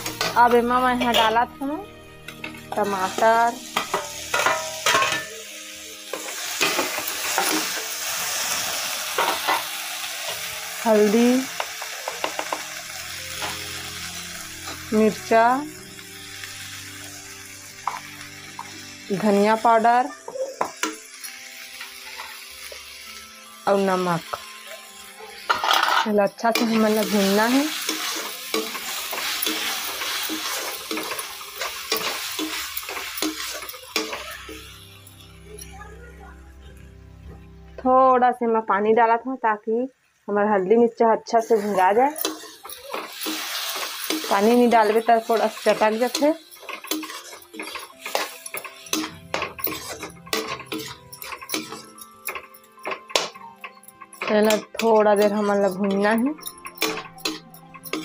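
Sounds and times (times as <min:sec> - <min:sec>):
tomatoes sizzling in oil: 0:00.0 - 0:58.0
metal spatula scraping pan: 0:25.3 - 0:34.8, 0:41.6 - 0:58.0
metal spoon scraping and knocking: 0:45.7 - 0:58.0.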